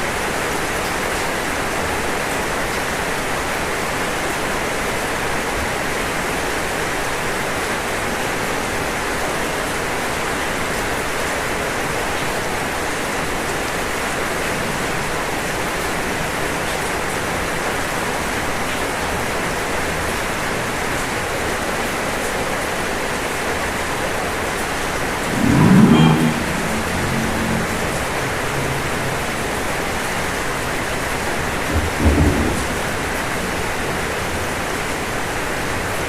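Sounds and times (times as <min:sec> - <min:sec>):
rain on a roof: 0:00.0 - 0:36.0
low rumble: 0:25.1 - 0:29.3.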